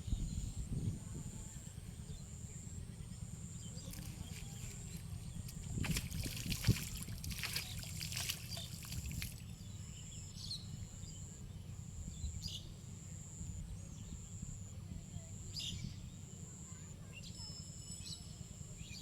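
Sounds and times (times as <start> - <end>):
water splashing and dripping: 3.9 - 9.4.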